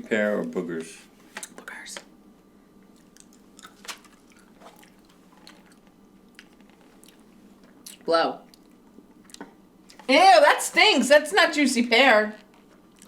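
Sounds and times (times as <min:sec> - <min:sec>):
person chewing: 0:02.9 - 0:10.0, 0:12.4 - 0:13.0.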